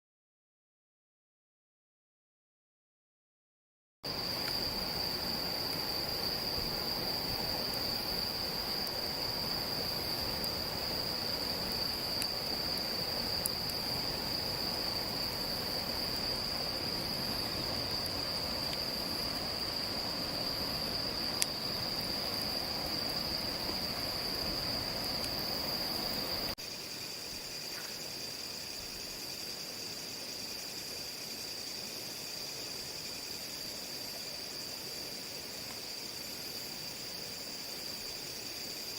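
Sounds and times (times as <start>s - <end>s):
night insects trilling: 4.0s - 38.9s
background hiss: 4.1s - 38.9s
lower-pitched insect trill: 4.1s - 38.9s
faint ticks: 12.2s - 13.8s.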